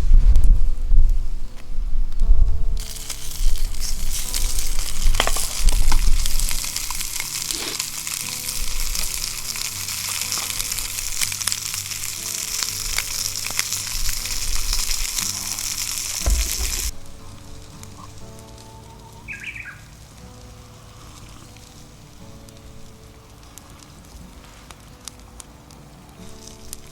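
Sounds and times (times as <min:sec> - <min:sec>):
low rumbling: 0:00.0 - 0:24.3
meat sizzling in a skillet: 0:02.8 - 0:23.7.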